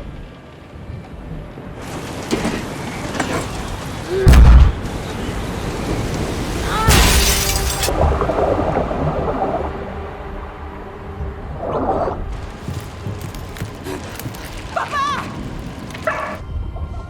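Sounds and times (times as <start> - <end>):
rain and storm noise: 0.0 - 16.8
loud crashing burst: 1.9 - 8.1
heavy low boom: 4.3 - 5.0.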